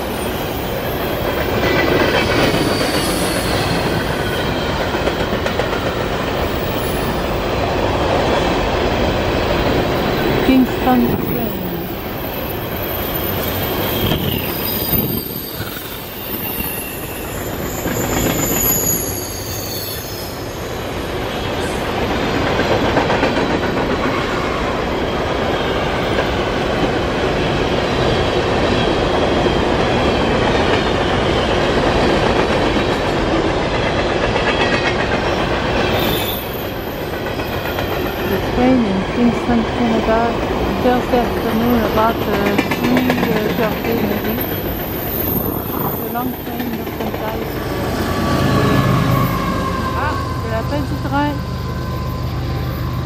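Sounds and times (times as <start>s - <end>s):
freight train rumble and clatter: 0.0s - 53.0s
high-pitched wheel squeals: 2.2s - 4.8s, 11.9s - 21.8s, 35.8s - 37.1s.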